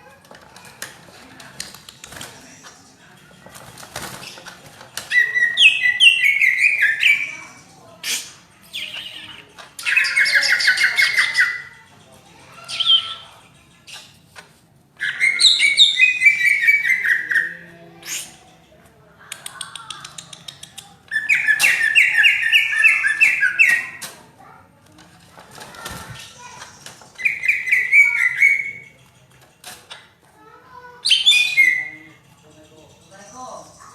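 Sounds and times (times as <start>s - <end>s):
bird singing rapid repeated notes: 5.0s - 7.6s, 8.4s - 14.3s, 15.0s - 18.7s, 19.6s - 24.0s, 25.7s - 33.9s
dry rattle of ticks: 18.1s - 21.1s.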